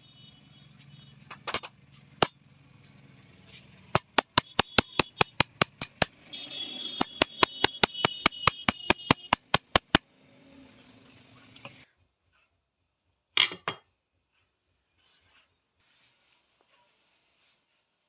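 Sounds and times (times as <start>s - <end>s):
hammer tapping on steel: 4.0s - 6.2s, 7.0s - 10.0s.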